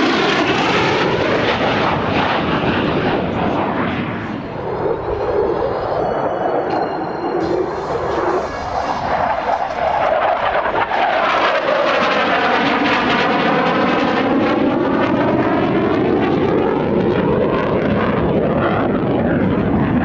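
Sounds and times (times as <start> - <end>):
fighter jet passing: 0.0 - 20.0.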